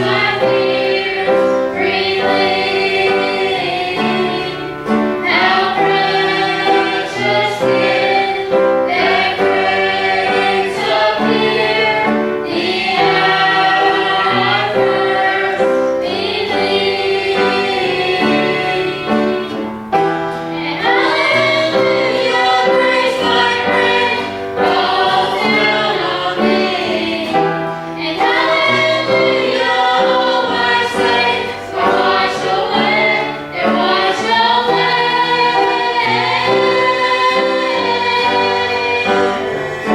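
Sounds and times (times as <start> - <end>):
group singing a hymn: 0.0 - 39.9
musical accompaniment: 0.0 - 39.9.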